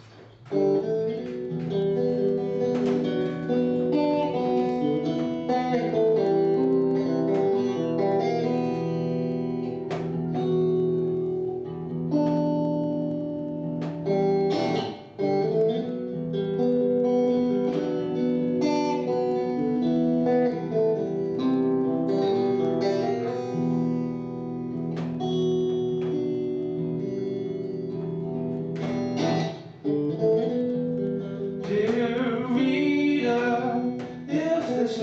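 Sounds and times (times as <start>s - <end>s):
acoustic guitar strumming chords: 0.0s - 35.0s.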